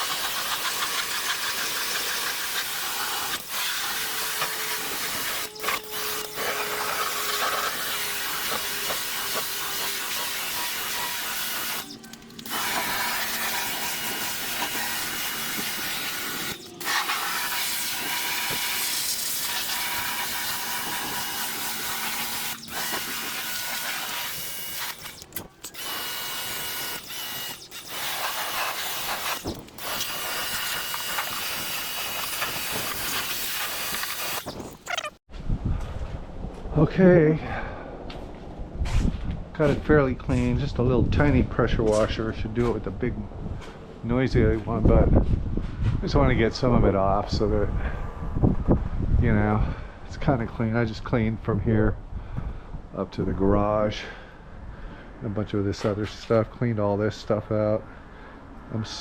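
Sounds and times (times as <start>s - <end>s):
pressure washer spraying water: 0.0s - 35.1s.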